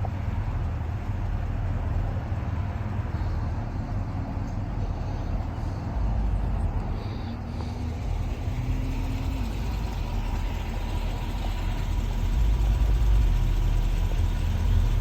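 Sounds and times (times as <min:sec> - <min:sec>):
diesel locomotive engine idling: 0:00.0 - 0:15.0.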